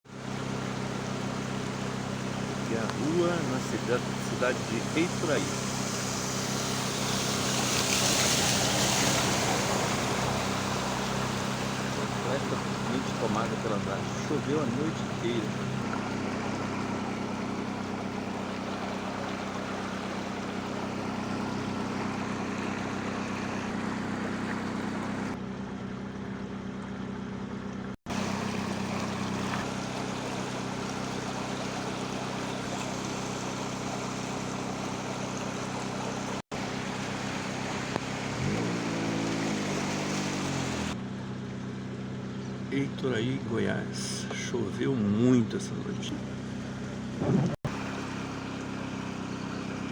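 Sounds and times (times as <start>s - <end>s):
floodwater rushing: 0.1s - 25.4s, 28.1s - 41.0s, 45.7s - 49.9s
low hum: 0.2s - 49.9s.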